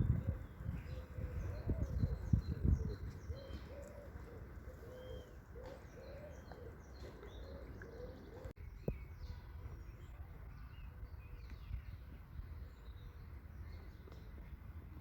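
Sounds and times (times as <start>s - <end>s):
pigeons cooing: 0.0s - 8.6s
small birds chirping: 0.0s - 14.8s.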